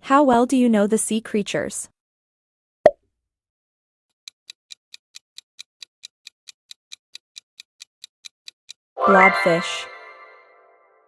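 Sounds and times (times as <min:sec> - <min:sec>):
clock ticking: 0:04.2 - 0:08.8.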